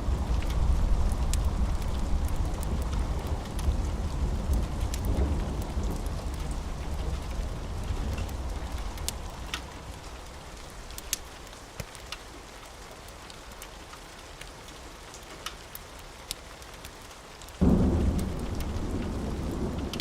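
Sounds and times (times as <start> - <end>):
low rumble of thunder: 0.0 - 10.9, 17.6 - 20.0
steady rain: 0.0 - 20.0
wood fire crackling: 0.0 - 20.0.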